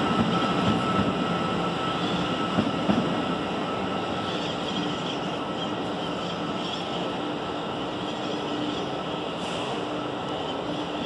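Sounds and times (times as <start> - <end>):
electric train running: 0.0 - 11.0.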